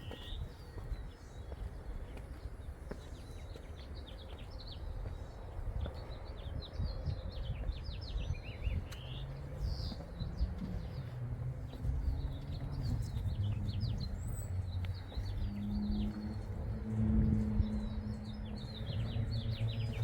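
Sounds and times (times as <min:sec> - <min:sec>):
small birds chirping: 0:00.0 - 0:20.0
steady low rumble: 0:04.4 - 0:20.0.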